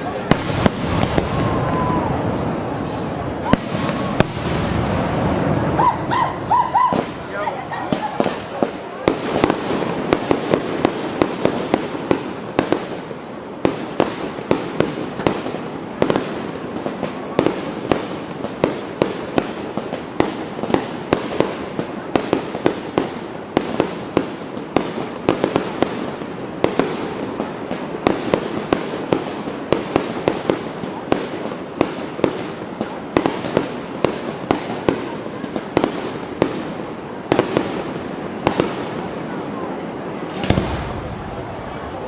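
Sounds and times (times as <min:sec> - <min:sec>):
fireworks bangs: 0:00.0 - 0:42.0
fireworks crackling: 0:00.0 - 0:42.0.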